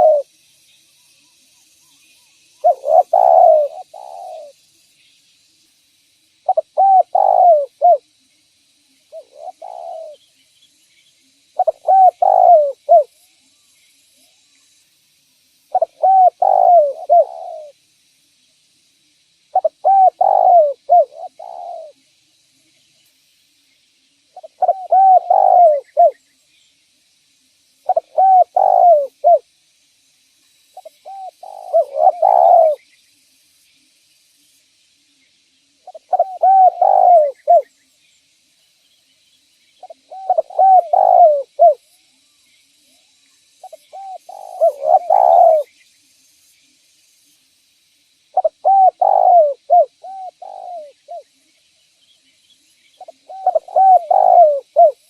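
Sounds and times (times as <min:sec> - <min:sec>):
dove cooing: 0:00.0 - 0:00.3, 0:02.6 - 0:04.6, 0:06.5 - 0:08.0, 0:09.1 - 0:10.2, 0:11.6 - 0:13.1, 0:15.7 - 0:17.8, 0:19.5 - 0:22.0, 0:24.4 - 0:26.2, 0:27.9 - 0:29.4, 0:30.8 - 0:32.8, 0:35.9 - 0:37.7, 0:39.8 - 0:41.8, 0:43.6 - 0:45.7, 0:48.4 - 0:51.2, 0:53.0 - 0:55.0.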